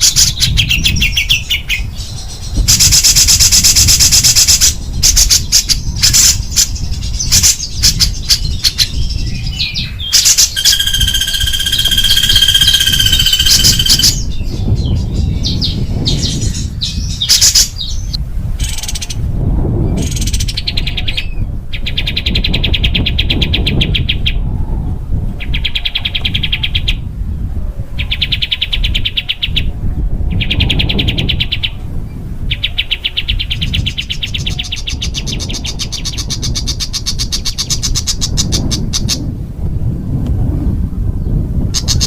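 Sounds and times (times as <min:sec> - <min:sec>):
songbird harsh trills: 0:00.0 - 0:19.2.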